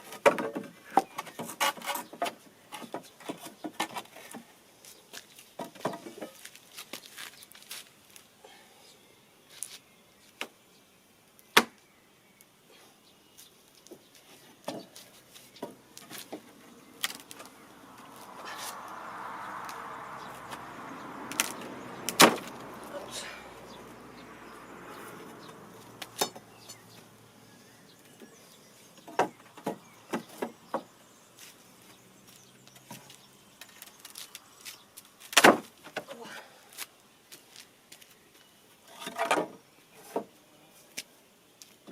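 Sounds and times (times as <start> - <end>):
steady rushing noise: 15.8 - 26.2.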